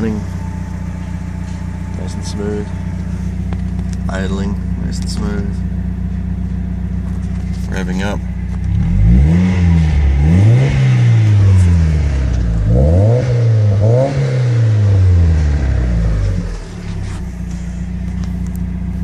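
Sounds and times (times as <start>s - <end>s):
car engine revving and idling: 0.0s - 19.0s.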